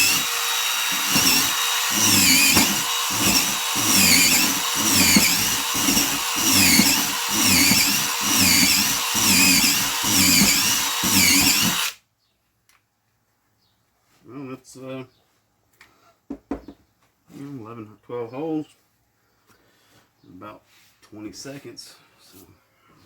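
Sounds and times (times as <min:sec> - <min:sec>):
impact driver boring into wood: 0:00.0 - 0:12.0.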